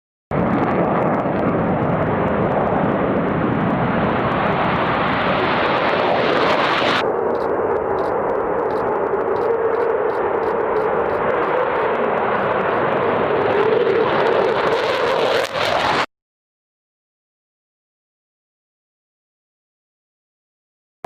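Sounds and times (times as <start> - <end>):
jet engine roar: 0.4 - 16.1.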